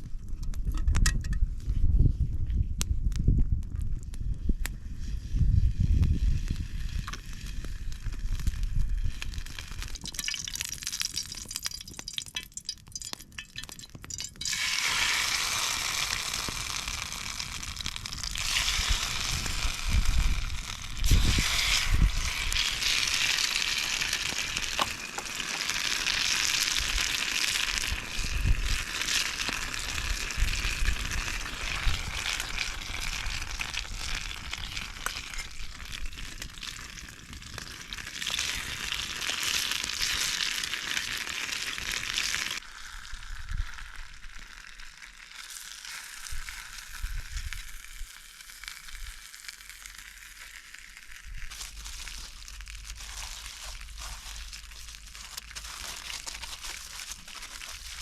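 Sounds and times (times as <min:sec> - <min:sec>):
food sizzling in a pan: 0:14.4 - 0:58.0.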